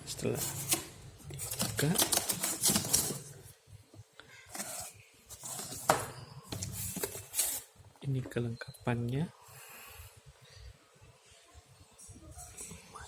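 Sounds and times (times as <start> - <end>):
cardboard and plastic rustling: 0.2 - 3.6, 4.4 - 7.7.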